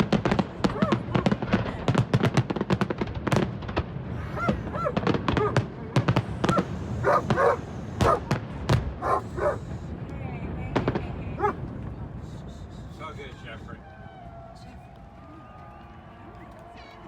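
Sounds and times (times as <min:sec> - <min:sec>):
fireworks cracking and popping: 0:00.0 - 0:13.0.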